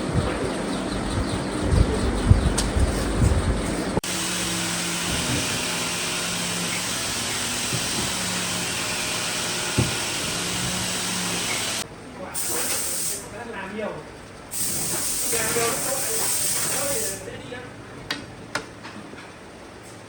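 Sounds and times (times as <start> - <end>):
knock: 9.8 - 10.0
rushing air hiss: 12.4 - 13.3, 14.5 - 17.2.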